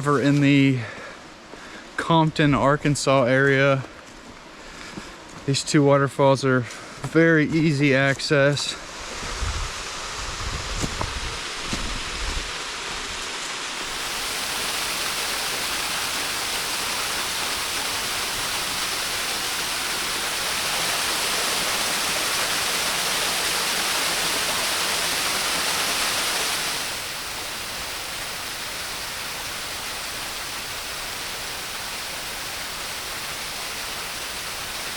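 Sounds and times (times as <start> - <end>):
waterfall rushing: 13.7 - 34.9.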